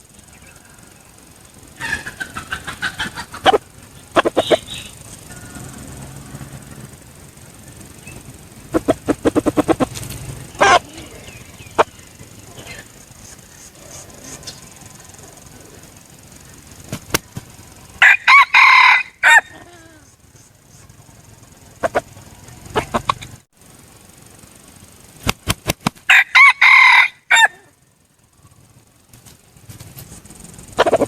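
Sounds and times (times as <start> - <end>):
rooster crowing: 0.2 - 7.0, 17.7 - 20.2, 26.1 - 27.8.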